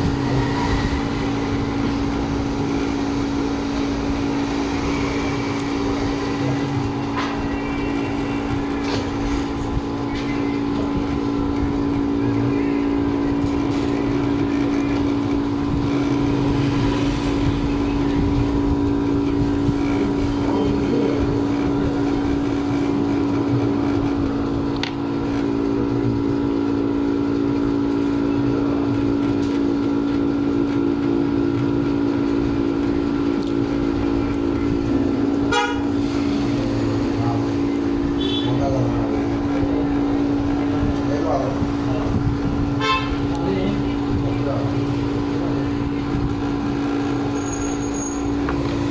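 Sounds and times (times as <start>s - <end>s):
machine hum: 0.0s - 48.9s.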